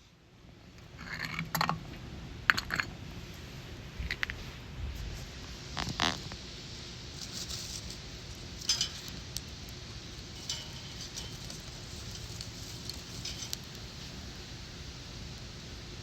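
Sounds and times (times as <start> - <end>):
wood fire crackling: 5.2 - 16.0.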